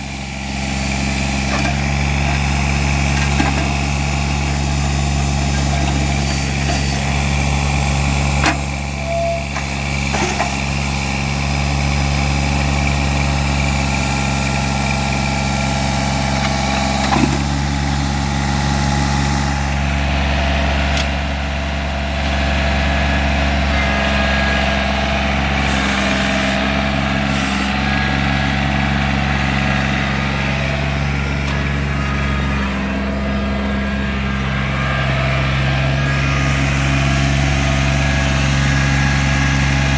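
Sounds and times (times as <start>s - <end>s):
tractor diesel engine running: 0.0s - 39.9s
short engine knocks: 16.4s - 17.6s.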